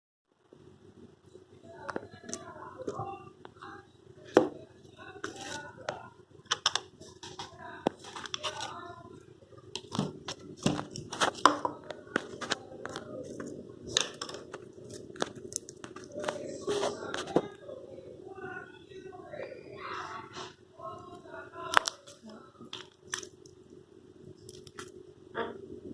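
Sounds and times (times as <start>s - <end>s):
slime clicking and popping: 21.6s - 23.6s.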